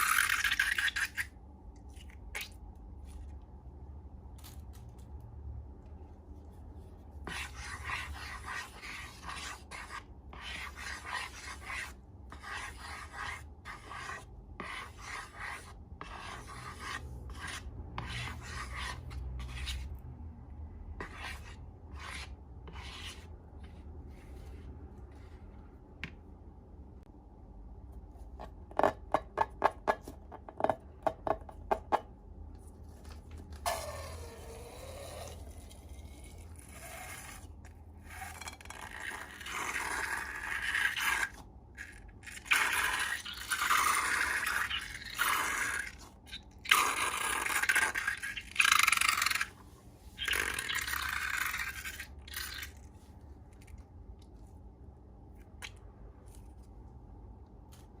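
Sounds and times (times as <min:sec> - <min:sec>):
slime squishing and scraping: 0:06.4 - 0:20.0, 0:32.6 - 0:53.9.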